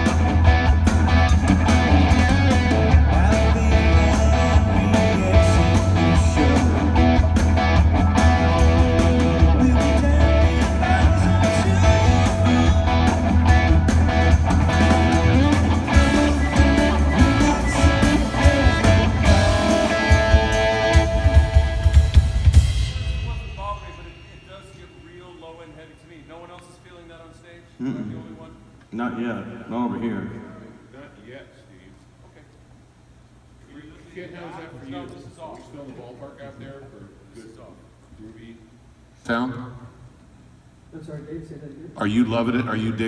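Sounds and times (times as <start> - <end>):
electric guitar: 0.0 - 23.0
rock band playing: 0.0 - 24.5.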